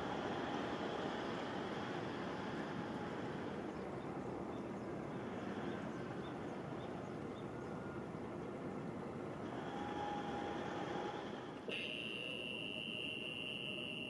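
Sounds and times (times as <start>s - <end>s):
faint high chirps: 11.7s - 14.0s.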